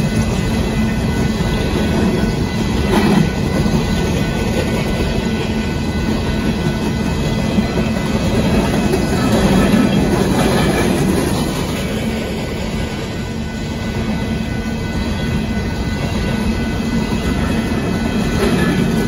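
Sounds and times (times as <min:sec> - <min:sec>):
steel wheels clattering on rails: 0:00.0 - 0:19.0
train cars rumbling: 0:00.0 - 0:19.0.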